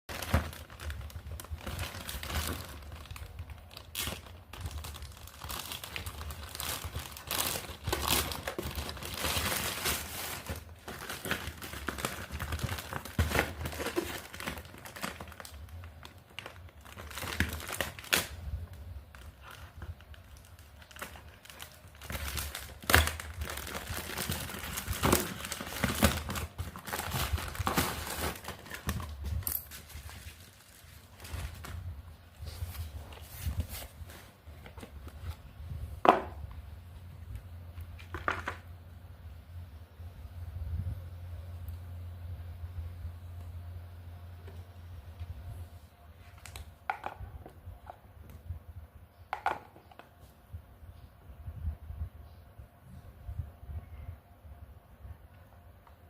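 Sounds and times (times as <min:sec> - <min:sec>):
plastic wrap crinkling and tearing: 0:00.1 - 0:35.4.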